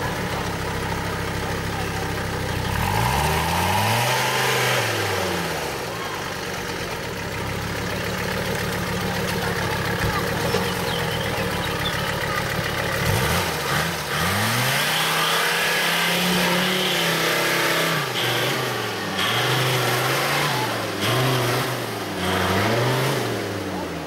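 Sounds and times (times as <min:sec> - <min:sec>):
car engine revving under load: 0:00.0 - 0:24.0.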